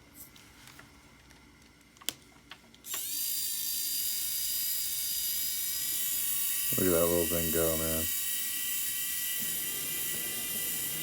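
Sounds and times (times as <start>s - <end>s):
electric screwdriver whine: 2.9s - 7.0s, 7.8s - 11.0s.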